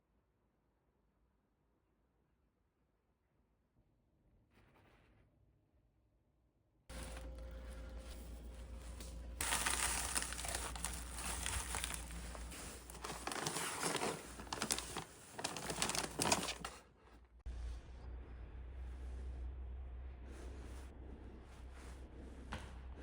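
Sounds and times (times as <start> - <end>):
crinkling and rustling: 6.9 - 17.2.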